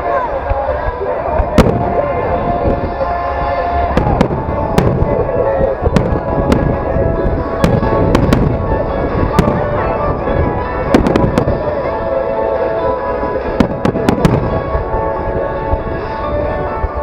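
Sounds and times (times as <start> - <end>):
fireworks rumble: 0.0 - 17.0
fireworks bangs: 1.3 - 11.8, 13.4 - 16.3.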